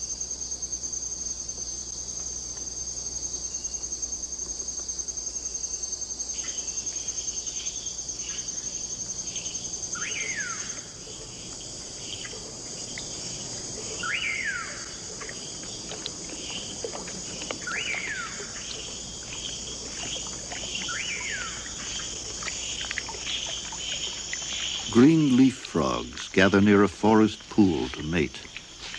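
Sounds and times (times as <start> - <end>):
high insect hiss: 0.0 - 28.9
pulsing insect trill: 0.0 - 28.9
loud swooping calls: 9.9 - 28.6.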